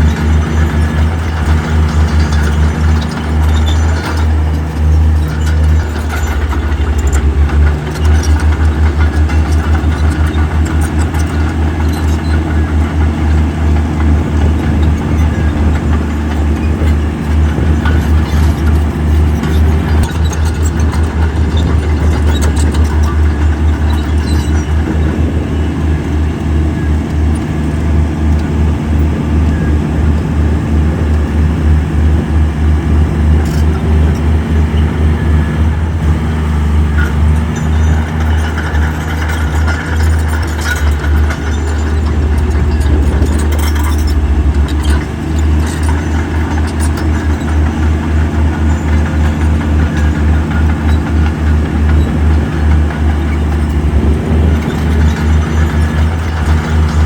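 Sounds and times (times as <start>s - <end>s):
short clicks and clatter: 0.0s - 25.3s, 36.9s - 57.0s
heavy diesel engine running: 0.0s - 57.0s.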